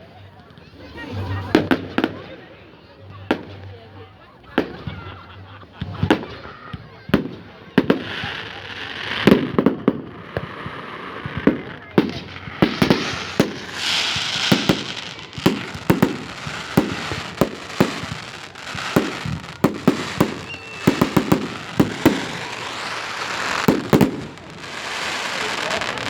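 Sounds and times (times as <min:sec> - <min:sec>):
fireworks bangs and pops: 0:05.8 - 0:26.0
fireworks crackling hiss: 0:07.2 - 0:26.0.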